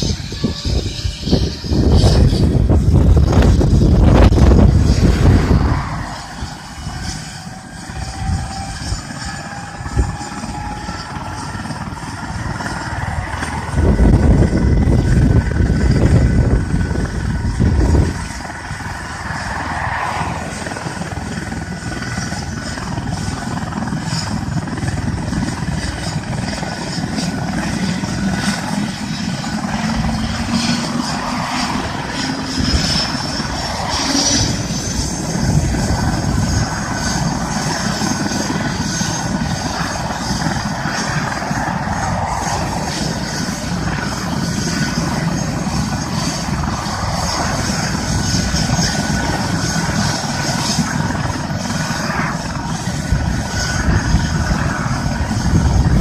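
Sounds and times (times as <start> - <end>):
helicopter turbine whine: 0.0 - 56.0
wind rumbling on microphone: 0.0 - 56.0.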